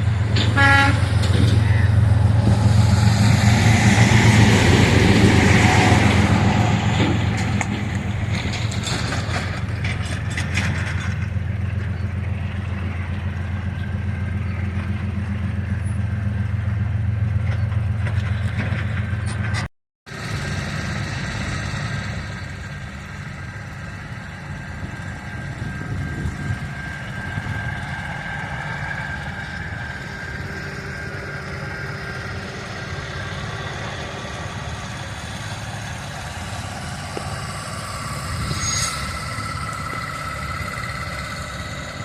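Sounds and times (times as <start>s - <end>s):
heavy engine rumbling: 0.0s - 42.0s
high whining tones: 25.0s - 42.0s.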